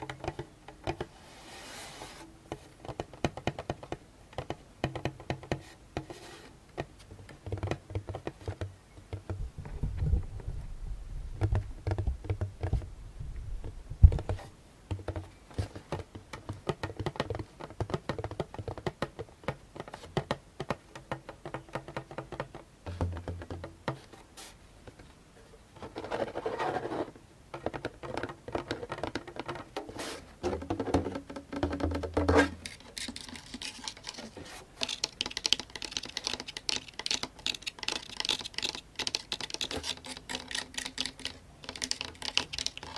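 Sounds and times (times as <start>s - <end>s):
nails scratching over a drum: 29.7s - 35.1s
fingertips tapping on a djembe: 30.5s - 32.6s.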